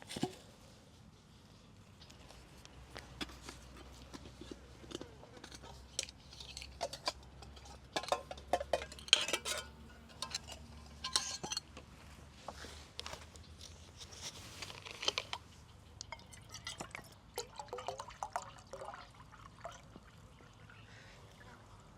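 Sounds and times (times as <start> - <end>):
metal cookware clinking: 5.4 - 11.8, 16.1 - 18.0.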